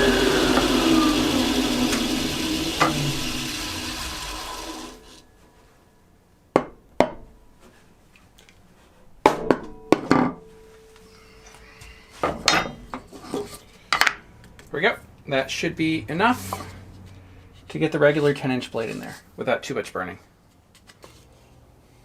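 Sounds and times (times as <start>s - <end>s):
table saw winding down: 0.0s - 5.2s.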